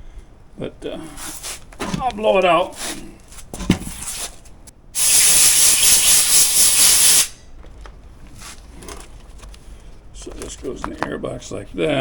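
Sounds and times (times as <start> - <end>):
compressed air hissing: 5.0 - 7.4.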